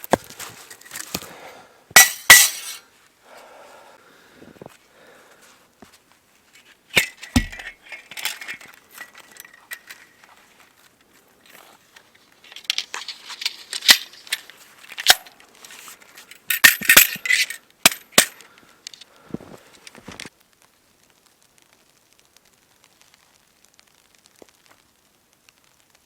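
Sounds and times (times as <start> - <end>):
small hard objects clicking and clinking: 6.6 - 10.7, 11.4 - 19.1.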